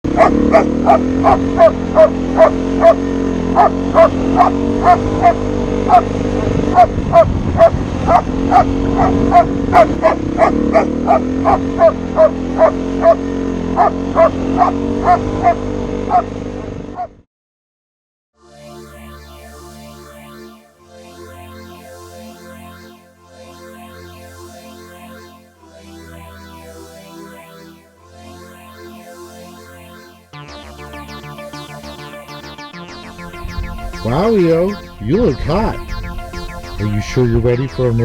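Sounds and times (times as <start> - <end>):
steady low drone: 0.0 - 14.6, 30.2 - 38.0
dog barking: 0.1 - 3.0, 3.6 - 16.3, 17.0 - 17.2.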